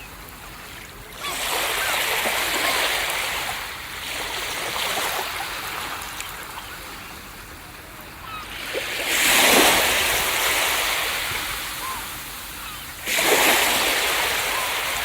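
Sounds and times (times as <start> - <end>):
surf washing and hissing: 0.0 - 15.0
wave breaking: 13.0 - 15.0.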